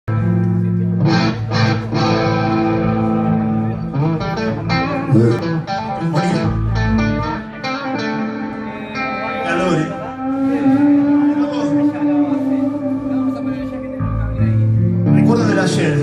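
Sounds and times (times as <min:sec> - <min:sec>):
rock band playing: 0:00.1 - 0:16.0
strummed electric guitar chords: 0:00.1 - 0:16.0
deep low note: 0:10.0 - 0:15.2.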